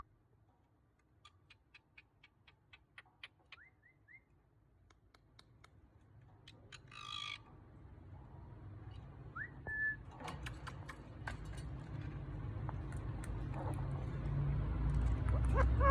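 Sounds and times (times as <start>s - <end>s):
parrot squawk: 6.7s - 7.4s, 15.3s - 15.9s.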